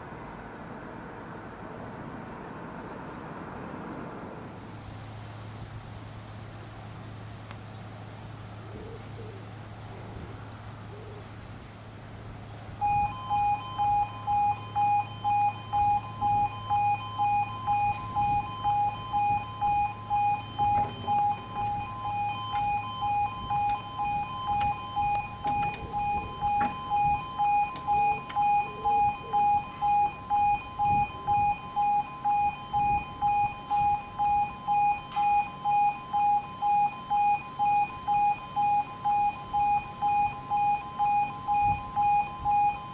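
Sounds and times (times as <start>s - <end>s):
low steady hum: 0.0s - 42.9s
level crossing alarm beeping: 12.8s - 42.9s.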